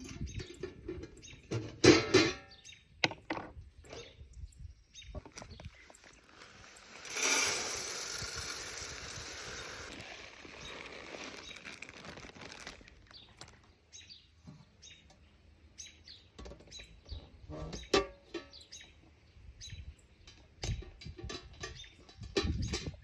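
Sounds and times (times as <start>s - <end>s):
birdseed pouring into feeder: 6.1s - 13.6s.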